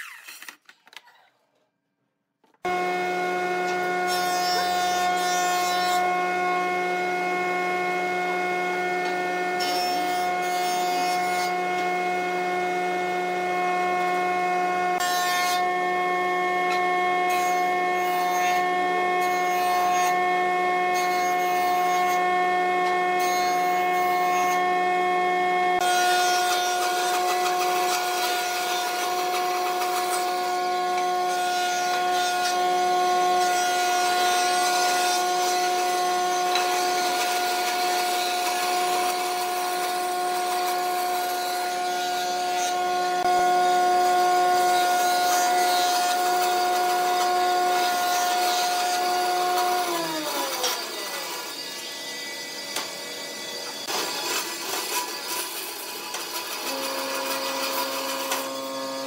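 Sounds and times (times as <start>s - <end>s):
wood lathe motor hum: 24.5s - 59.0s.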